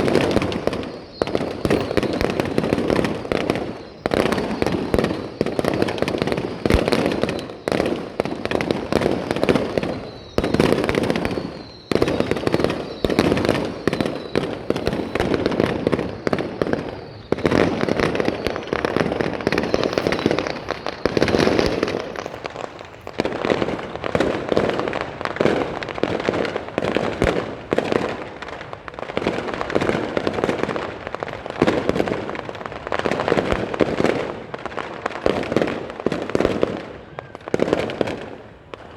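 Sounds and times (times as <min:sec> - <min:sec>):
fireworks shell bursts: 0:00.0 - 0:07.7, 0:18.4 - 0:22.5.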